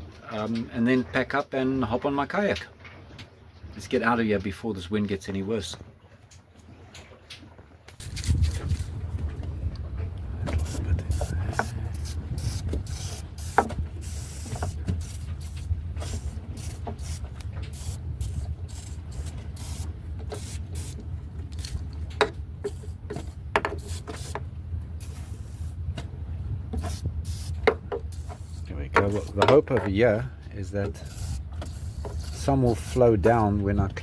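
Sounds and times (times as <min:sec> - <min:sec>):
wind rumble on microphone: 0:08.0 - 0:29.5
aerosol spray bursts: 0:10.6 - 0:21.0, 0:22.7 - 0:24.4, 0:25.0 - 0:25.8, 0:26.8 - 0:29.3, 0:31.0 - 0:33.0.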